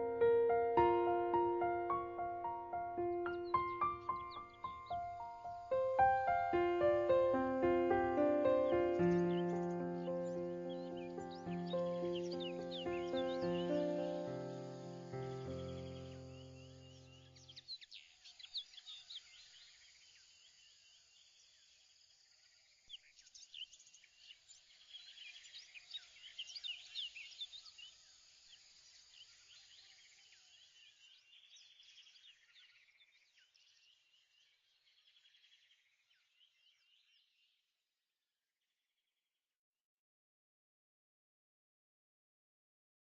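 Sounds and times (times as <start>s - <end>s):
birds chirping and twittering: 0.0s - 21.8s, 22.5s - 37.6s.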